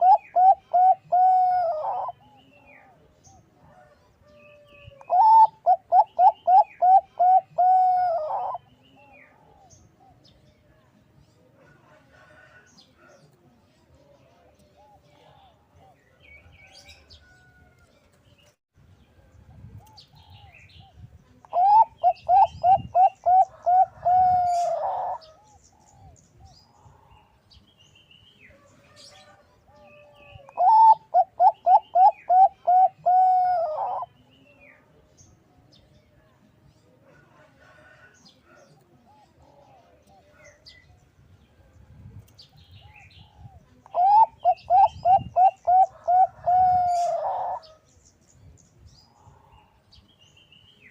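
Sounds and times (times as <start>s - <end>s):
dove rapid staccato cooing: 0.0s - 2.2s, 5.1s - 8.6s, 21.6s - 25.6s, 30.6s - 34.1s, 43.9s - 47.6s.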